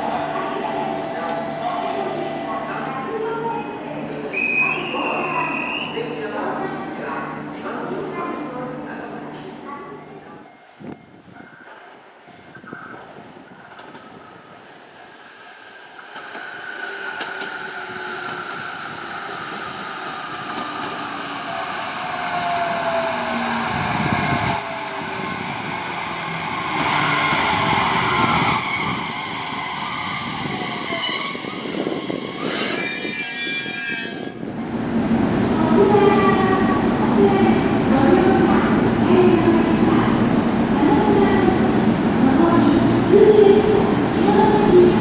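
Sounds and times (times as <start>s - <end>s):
high squeal: 4.3s - 7.2s, 16.5s - 34.4s
electric train inverter whine: 16.0s - 31.0s.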